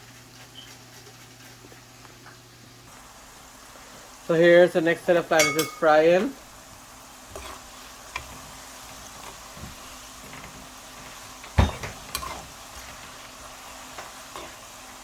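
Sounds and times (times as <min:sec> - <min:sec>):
plantain sizzling in hot oil: 0:00.0 - 0:15.0
utensil clinking against pot: 0:05.4 - 0:06.3, 0:11.4 - 0:12.5.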